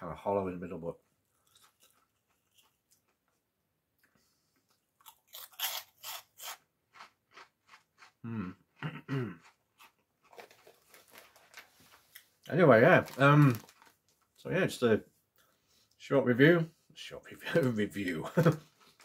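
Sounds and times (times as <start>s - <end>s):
crunching and chewing snacks: 1.3s - 3.4s, 4.6s - 8.3s, 9.4s - 14.4s
person humming: 8.2s - 9.4s.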